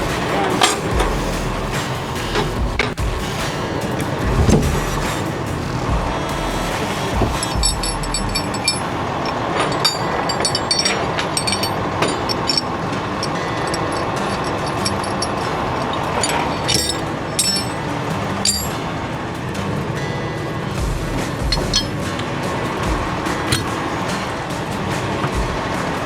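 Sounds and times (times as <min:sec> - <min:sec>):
truck engine running: 0:00.0 - 0:26.0
metallic clicks and knocks: 0:07.1 - 0:18.8, 0:21.4 - 0:22.0.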